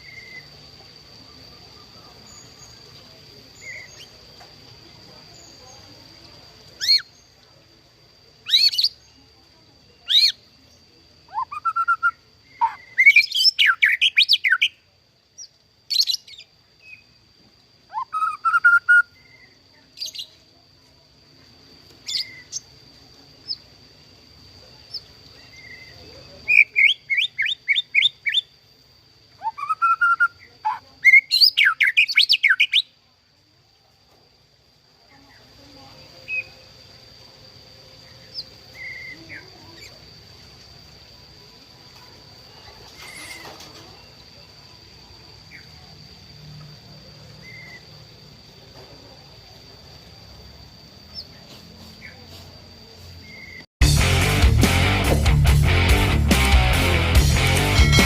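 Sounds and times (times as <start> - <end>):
bird singing whistles and trills: 0.0 - 0.5, 8.5 - 9.0, 11.3 - 14.8, 17.9 - 20.4, 22.1 - 22.7, 24.9 - 28.5, 29.4 - 32.9, 38.2 - 39.9, 47.4 - 47.9, 53.2 - 53.6.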